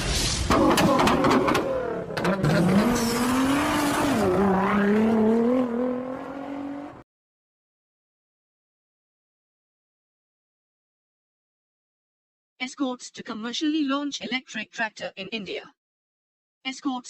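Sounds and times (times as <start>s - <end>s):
car engine revving: 0.5s - 7.0s.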